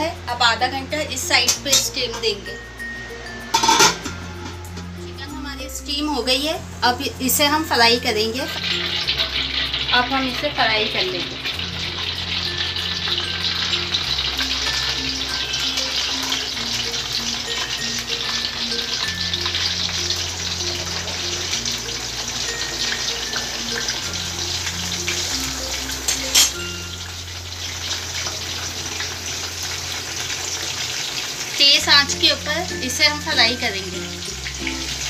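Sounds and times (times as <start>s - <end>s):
background music with bass: 2.0s - 8.0s, 11.3s - 27.9s, 33.9s - 35.0s
chicken frying in hot oil: 5.0s - 35.0s.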